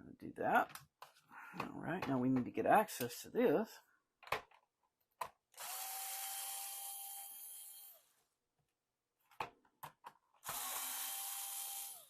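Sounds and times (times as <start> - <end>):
electric screwdriver motor whine: 5.6 - 8.0, 10.4 - 12.0.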